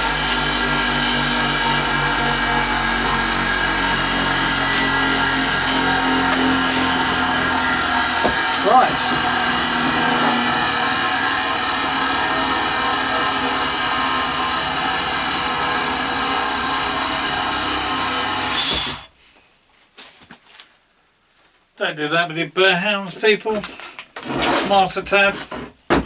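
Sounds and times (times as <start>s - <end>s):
bench grinder running: 0.0s - 19.1s.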